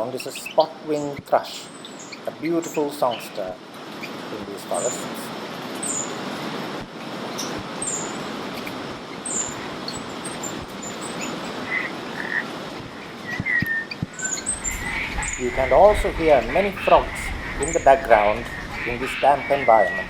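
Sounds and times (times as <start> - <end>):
birds calling: 0.0 - 20.0
frogs calling: 0.0 - 20.0
steady hiss: 0.0 - 20.0
thrush whistled song: 7.3 - 20.0.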